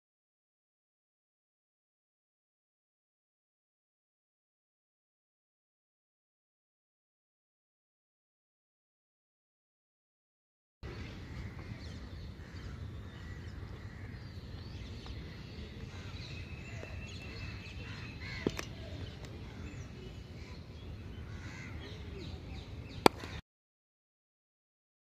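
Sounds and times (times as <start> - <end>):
birds calling: 10.8 - 23.4
loud sharp crack: 23.0 - 23.4.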